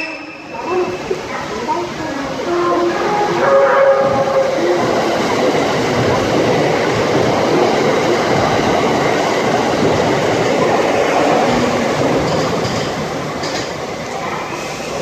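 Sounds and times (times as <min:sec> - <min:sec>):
train wheels rushing on rails: 0:00.0 - 0:15.0
heavy rain: 0:00.5 - 0:15.0
clatter over rail joints: 0:05.8 - 0:13.8.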